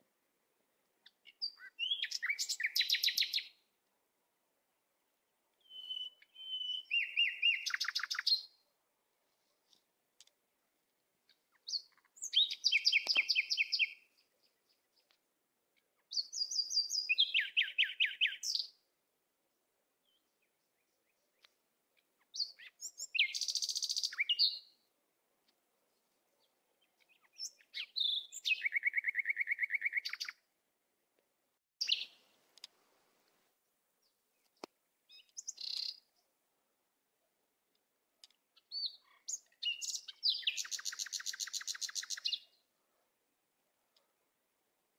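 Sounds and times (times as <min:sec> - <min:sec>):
songbird trilling: 0:01.2 - 0:03.5, 0:05.6 - 0:08.5, 0:11.6 - 0:14.0, 0:22.3 - 0:24.6, 0:27.1 - 0:30.4, 0:35.1 - 0:36.0, 0:38.7 - 0:42.5.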